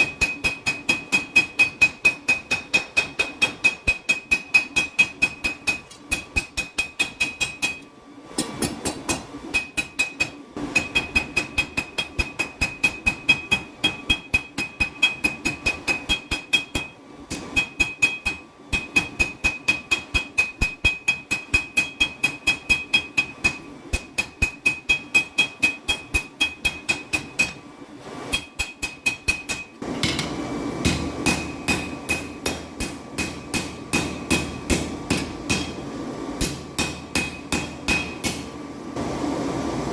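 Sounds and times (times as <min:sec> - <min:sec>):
hammer ringing on anvil: 0:00.0 - 0:07.8, 0:28.4 - 0:35.8, 0:36.4 - 0:38.5.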